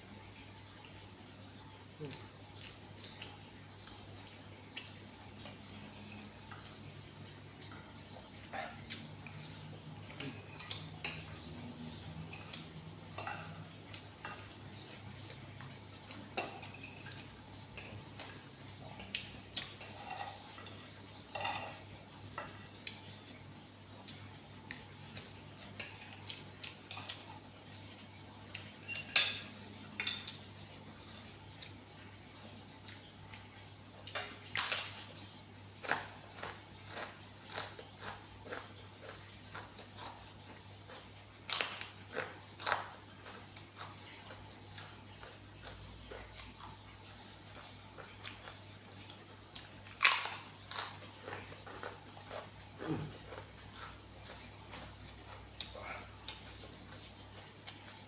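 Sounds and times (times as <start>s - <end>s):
utensils clinking against bowl: 10.0s - 14.8s, 19.0s - 22.9s, 28.8s - 31.2s.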